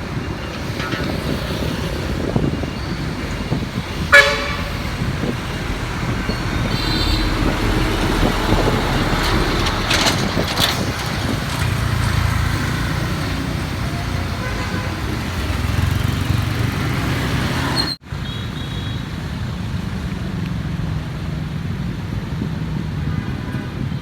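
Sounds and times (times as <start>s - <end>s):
motorbike engine and road rumble: 0.0s - 24.0s
vehicle horn toot: 4.0s - 5.0s, 6.6s - 7.6s, 17.8s - 19.1s.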